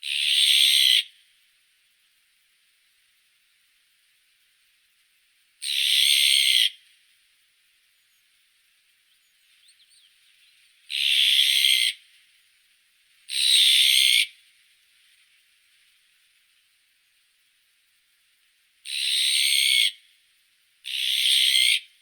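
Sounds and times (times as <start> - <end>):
magpie harsh calls: 0.0 - 1.1, 5.6 - 6.8, 10.9 - 12.0, 13.3 - 14.3, 18.9 - 20.0, 20.9 - 21.9.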